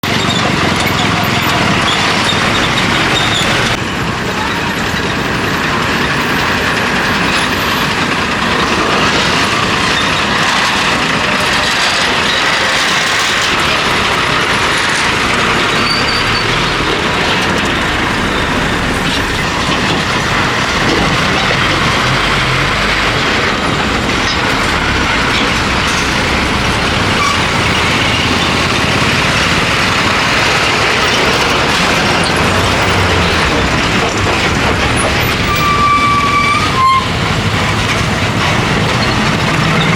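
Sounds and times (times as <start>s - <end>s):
road traffic passing close: 0.0s - 39.9s.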